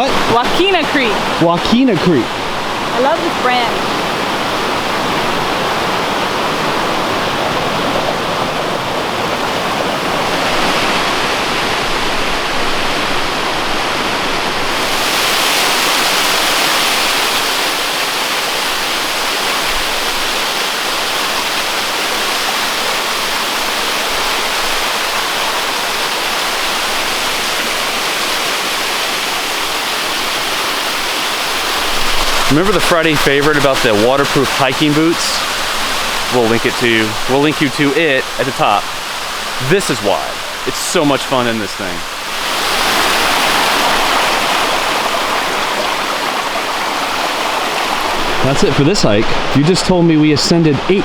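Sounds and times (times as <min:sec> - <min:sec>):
rushing water of waterfall: 0:00.0 - 0:51.0.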